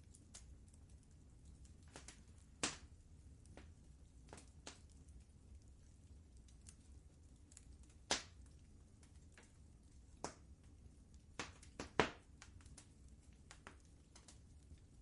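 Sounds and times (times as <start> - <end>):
faint low rumble: 0.0 - 15.0
wood fire crackling: 0.0 - 15.0.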